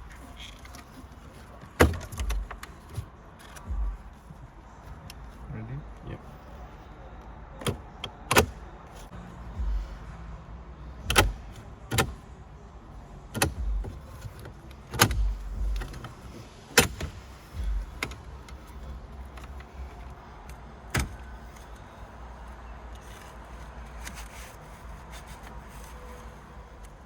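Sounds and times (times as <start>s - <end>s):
low thuds: 1.9s - 4.8s, 9.5s - 10.2s, 13.4s - 14.3s, 15.0s - 18.3s
sharp clicks and knocks: 11.1s - 12.2s.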